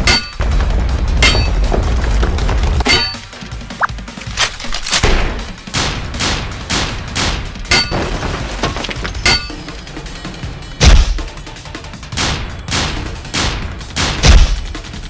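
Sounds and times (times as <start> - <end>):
gunshot-like bangs and impacts: 4.5 - 8.6, 10.8 - 11.3, 12.1 - 15.0.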